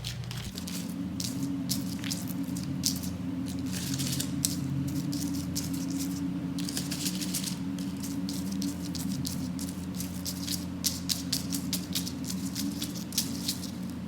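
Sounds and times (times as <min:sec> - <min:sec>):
steady low hum: 0:00.0 - 0:14.0
twig brush scraping on paper: 0:00.0 - 0:14.0.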